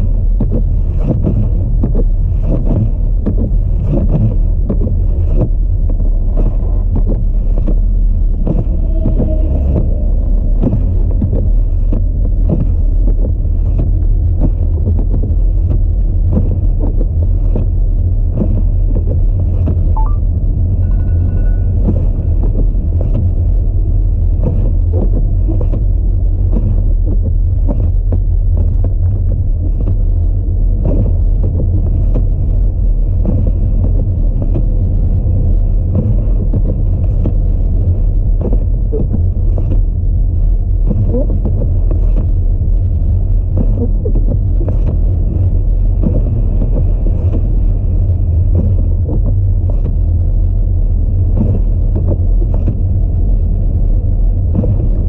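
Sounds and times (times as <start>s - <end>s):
buffeting thumps: 0.0s - 53.3s
road and wind noise rumble: 0.0s - 55.0s
faint tone: 20.0s - 21.9s.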